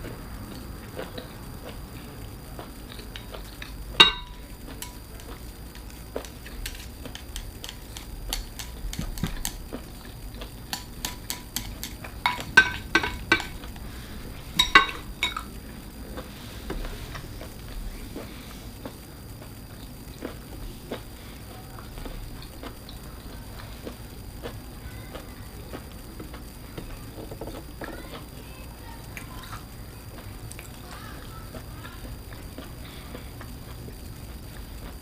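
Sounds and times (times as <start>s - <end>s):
utensils and shells clinking on dishes: 3.6s - 5.4s, 6.2s - 9.7s, 10.7s - 15.6s.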